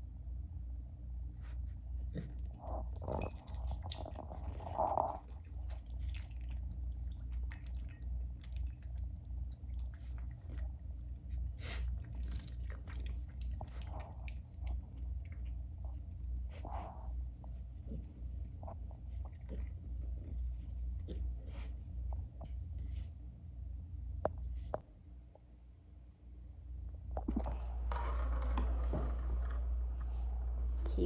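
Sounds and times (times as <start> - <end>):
low hum: 0.0 - 31.0
pig snuffling: 1.4 - 8.8, 9.8 - 23.1
pig chewing food: 2.1 - 21.7.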